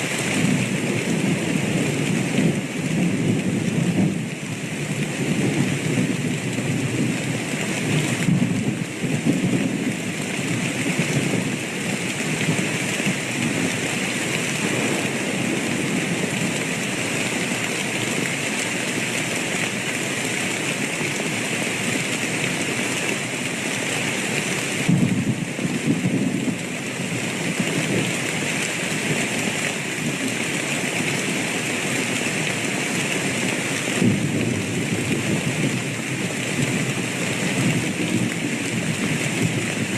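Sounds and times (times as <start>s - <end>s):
steady rain falling: 0.0s - 39.9s
low thunder rumbling: 14.6s - 16.6s, 24.8s - 26.6s, 34.0s - 37.0s.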